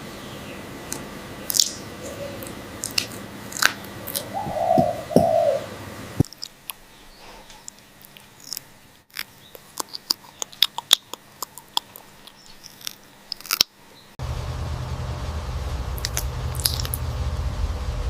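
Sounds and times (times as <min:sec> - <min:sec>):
parrot beak crunching: 0:00.9 - 0:04.6, 0:06.2 - 0:13.8, 0:16.0 - 0:17.0
parrot call: 0:01.9 - 0:02.6, 0:04.0 - 0:05.8.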